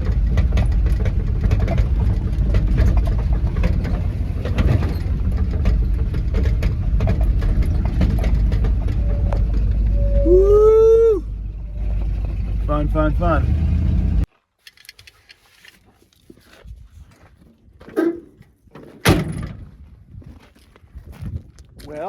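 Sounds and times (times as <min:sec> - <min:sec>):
rattling clicks from cab: 0:00.0 - 0:10.0
pickup truck engine rumble: 0:00.0 - 0:14.3
short pitched sound: 0:08.8 - 0:12.4.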